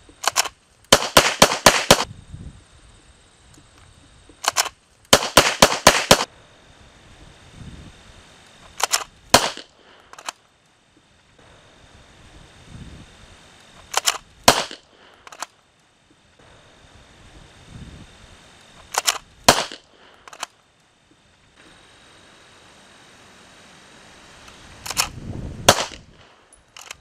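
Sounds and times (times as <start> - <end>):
pistol shots cracking: 0.2 - 2.1, 4.4 - 6.3, 8.8 - 10.3, 13.9 - 15.5, 18.9 - 20.5, 25.7 - 27.0.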